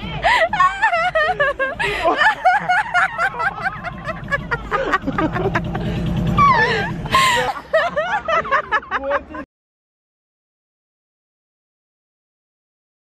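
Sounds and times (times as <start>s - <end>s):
car engine running: 0.0s - 9.4s
street traffic: 0.0s - 9.5s
voices calling out and talking: 0.0s - 9.5s.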